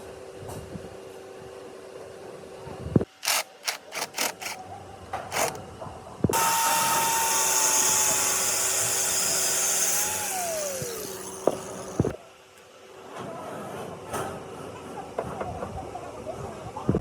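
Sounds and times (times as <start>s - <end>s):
handheld power tool running: 3.1s - 4.6s, 5.3s - 5.6s, 6.3s - 12.2s.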